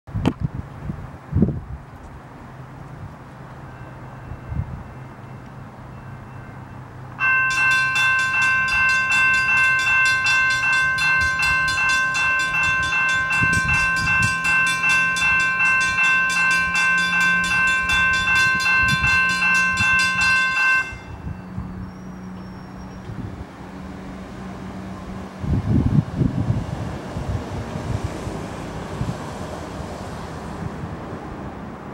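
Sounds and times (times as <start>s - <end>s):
crossing warning bells ringing: 3.5s - 25.3s.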